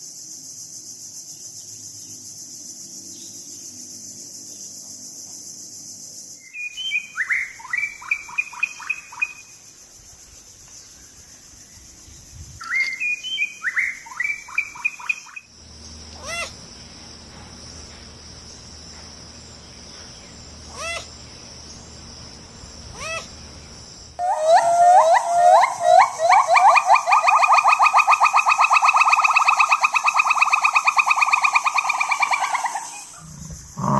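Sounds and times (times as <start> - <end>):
high insect trill: 0.0 - 33.9
bird song: 3.0 - 3.8, 6.4 - 9.4, 10.6 - 16.6, 17.8 - 33.7.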